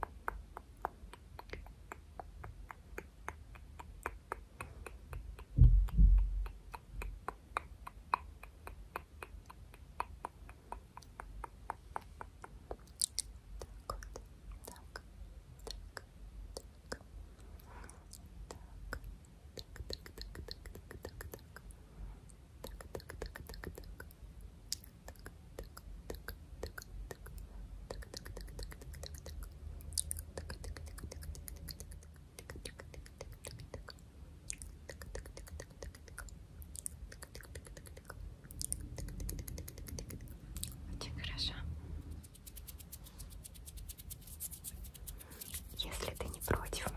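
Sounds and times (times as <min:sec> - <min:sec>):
hands rubbing and tapping: 0:00.0 - 0:12.9, 0:42.2 - 0:46.9.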